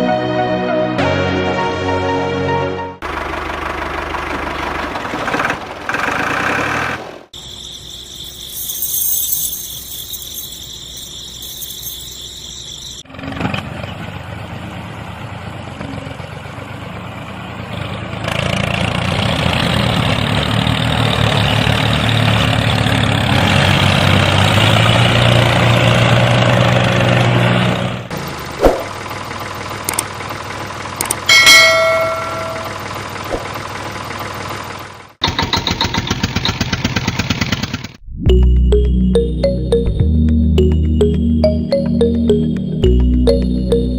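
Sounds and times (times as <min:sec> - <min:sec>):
small tractor motor running: 0:03.0 - 0:07.4, 0:13.1 - 0:38.0
fast even rattle: 0:35.2 - 0:38.0.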